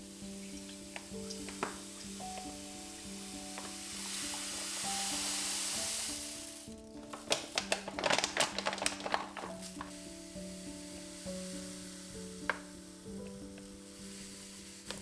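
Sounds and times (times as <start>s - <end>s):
food sizzling in hot oil: 0.0s - 15.0s
oil crackling and spattering: 0.2s - 15.0s.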